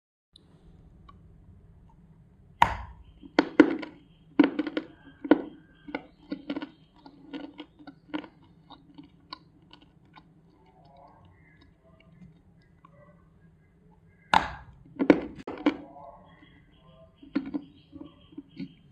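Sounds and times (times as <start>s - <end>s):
dry clay snapping: 2.6s - 10.8s, 14.3s - 15.9s, 17.3s - 18.8s
dry clay crunching: 2.6s - 13.0s, 14.0s - 18.9s.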